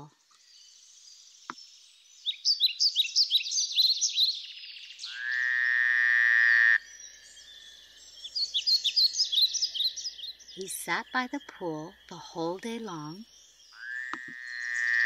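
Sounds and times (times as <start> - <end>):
frog croaking: 5.0 - 6.9, 13.7 - 15.0.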